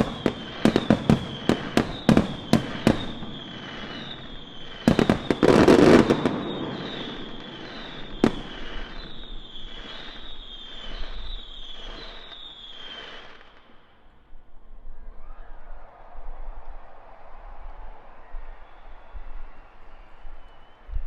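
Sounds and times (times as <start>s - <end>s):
short falling whistles: 0.0s - 13.9s, 15.0s - 21.0s
firework burst with crackling: 0.0s - 14.0s.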